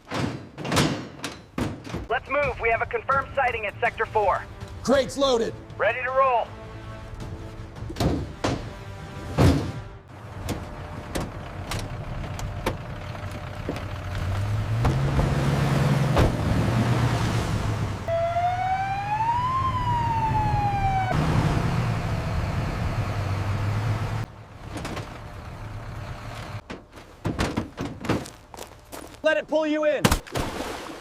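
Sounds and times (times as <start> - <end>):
vehicle engine drone: 10.1 - 26.7
emergency siren wail: 18.1 - 23.0.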